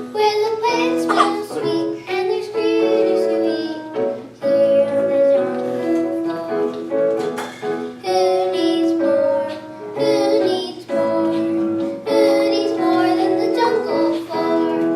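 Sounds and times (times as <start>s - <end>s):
children singing: 0.0s - 3.6s
musical accompaniment: 0.0s - 14.9s.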